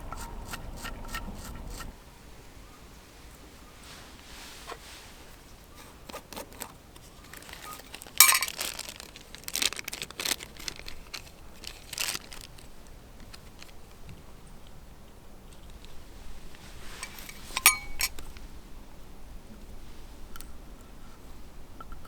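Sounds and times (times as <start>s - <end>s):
crinkling and rustling: 3.8s - 14.8s, 15.4s - 18.5s
sharp crackles: 7.2s - 13.8s.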